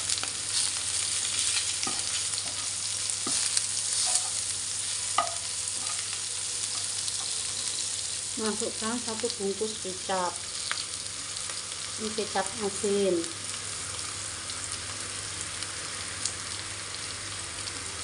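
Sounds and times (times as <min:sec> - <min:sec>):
food sizzling in hot oil: 0:00.0 - 0:18.0
metal utensils stirring in a wok: 0:03.3 - 0:04.4
utensil tapping a pan: 0:05.2 - 0:05.4.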